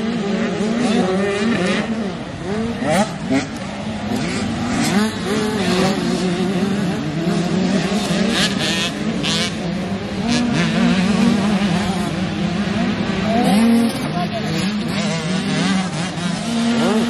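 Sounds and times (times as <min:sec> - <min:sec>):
motocross bikes revving: 0:00.0 - 0:17.0.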